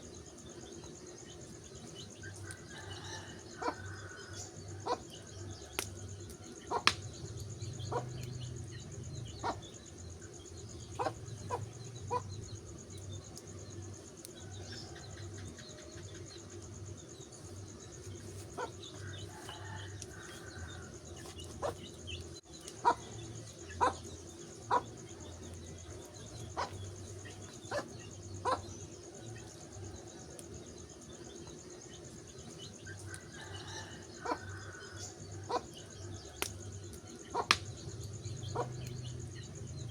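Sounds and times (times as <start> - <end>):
wood fire crackling and popping: 5.6 - 9.3, 36.3 - 39.6.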